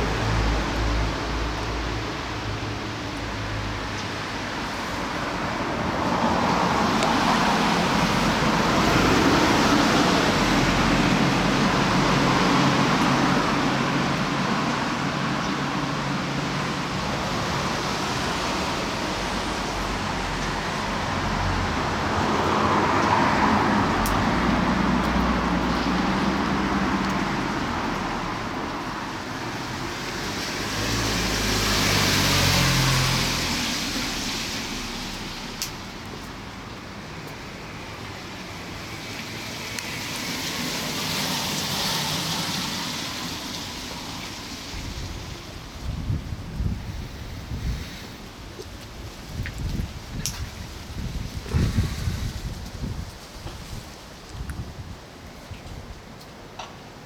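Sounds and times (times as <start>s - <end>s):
gusty wind through foliage: 0.0s - 57.0s
wind buffeting microphone: 44.7s - 56.2s.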